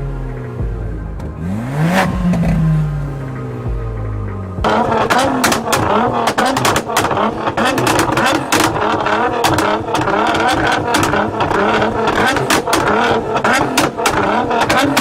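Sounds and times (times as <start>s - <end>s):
car engine revving: 0.0s - 15.0s
exhaust crackles and pops: 0.0s - 15.0s.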